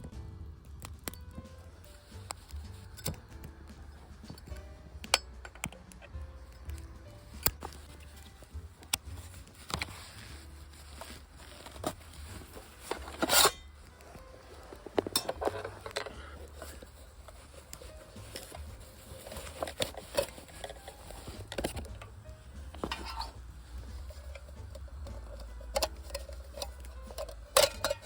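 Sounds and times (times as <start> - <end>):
metal cookware clinking: 11.0 - 28.0.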